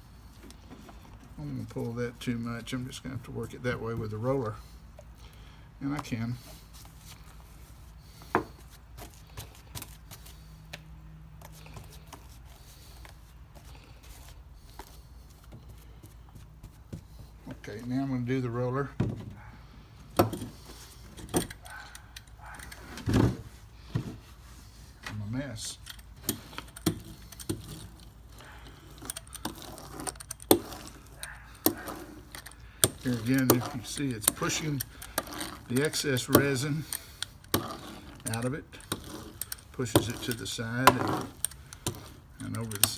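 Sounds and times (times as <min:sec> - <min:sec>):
soft rustles: 0:22.5 - 0:25.5
roller clicking and knocking: 0:25.8 - 0:42.9.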